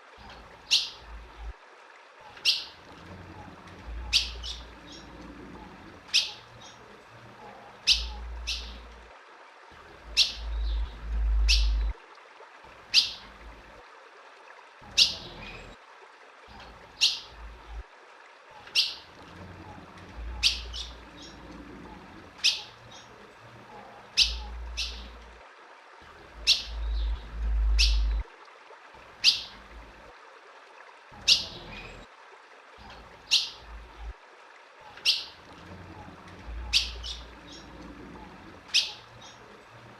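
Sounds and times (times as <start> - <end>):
bird chip calls: 4.0 - 5.1, 6.1 - 6.8, 7.8 - 8.9, 10.1 - 11.9, 18.7 - 19.1, 22.4 - 23.1, 24.1 - 25.2, 26.4 - 28.2, 29.2 - 29.6, 33.3 - 33.6, 35.0 - 35.4, 36.6 - 37.7, 38.7 - 39.4
low rumble: 10.4 - 12.0, 26.7 - 28.3.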